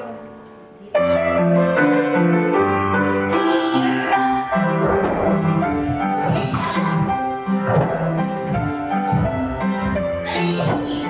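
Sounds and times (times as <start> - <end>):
piano chords: 0.0 - 11.0.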